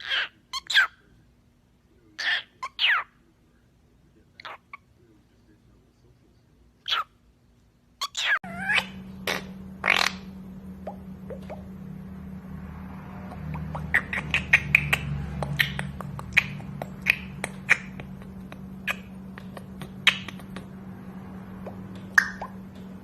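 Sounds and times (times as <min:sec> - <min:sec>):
parrot chirping: 0:00.0 - 0:01.0, 0:02.2 - 0:03.2, 0:04.4 - 0:04.9, 0:06.8 - 0:07.2, 0:08.0 - 0:12.0, 0:13.1 - 0:23.0
steady low hum: 0:00.3 - 0:23.0.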